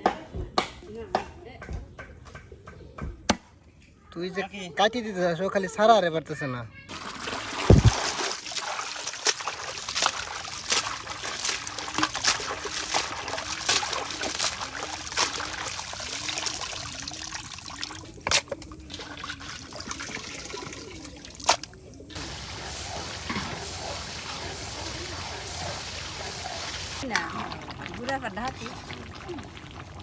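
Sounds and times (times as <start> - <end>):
water trickling and splashing: 6.9 - 30.0.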